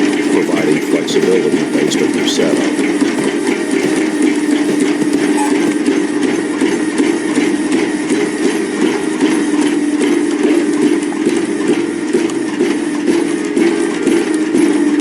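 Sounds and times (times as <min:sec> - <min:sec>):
fast irregular clattering knocks: 0:00.0 - 0:05.8
log splitter machine hum: 0:00.0 - 0:11.4.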